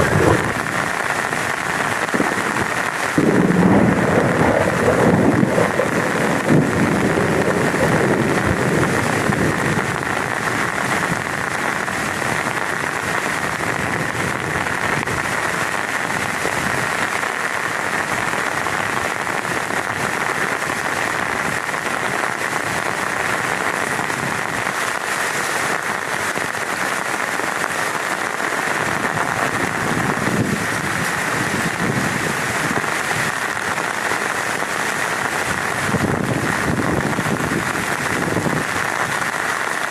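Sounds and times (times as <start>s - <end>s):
low rumble of thunder: 0.0s - 1.0s, 2.1s - 11.2s
heavy rain on a tent: 0.0s - 39.9s.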